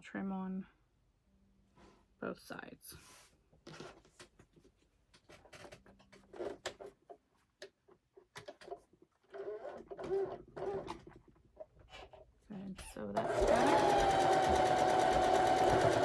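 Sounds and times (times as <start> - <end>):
sewing machine running: 13.2 - 16.0.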